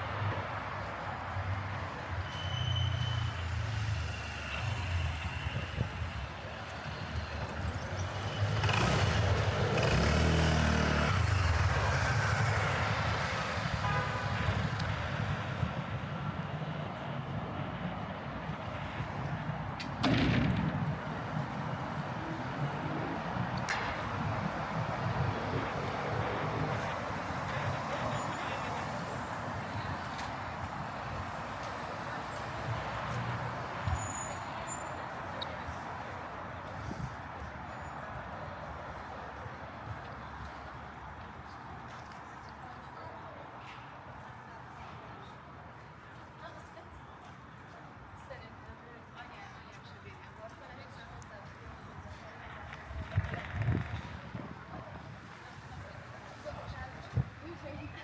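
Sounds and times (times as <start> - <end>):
traffic noise: 0.0 - 58.0
vehicle engine passing: 8.2 - 12.4.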